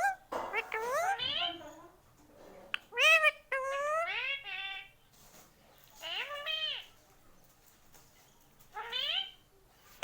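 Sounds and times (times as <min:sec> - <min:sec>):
parrot talking mimicry: 0:00.0 - 0:01.6, 0:02.7 - 0:04.9.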